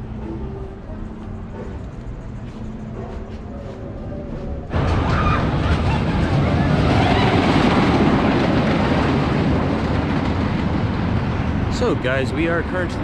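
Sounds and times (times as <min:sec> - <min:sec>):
loud outdoor rushing noise: 0:02.9 - 0:13.0.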